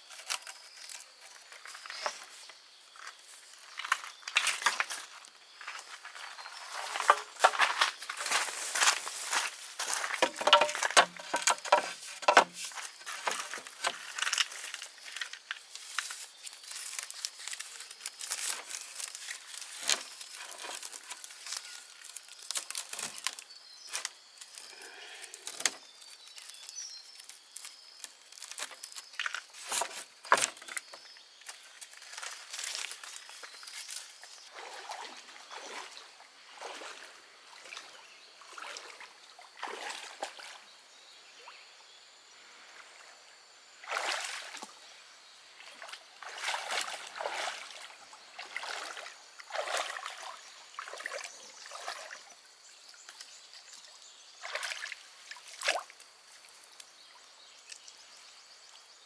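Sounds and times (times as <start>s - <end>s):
rustling and crackling: 6.6s - 34.4s.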